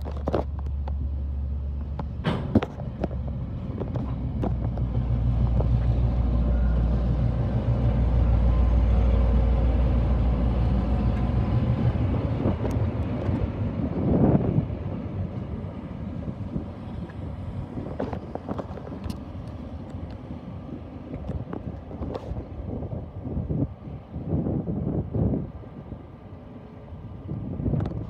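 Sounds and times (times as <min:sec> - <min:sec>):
train passing rumble: 0:00.0 - 0:28.0.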